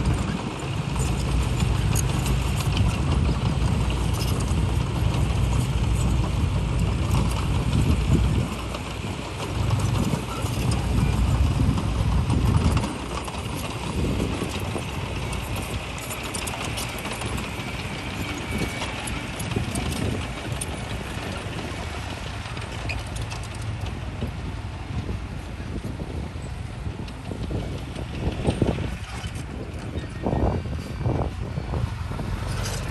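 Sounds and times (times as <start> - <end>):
bulldozer diesel engine: 0.0 - 32.9
crawler tracks clanking: 0.0 - 32.9.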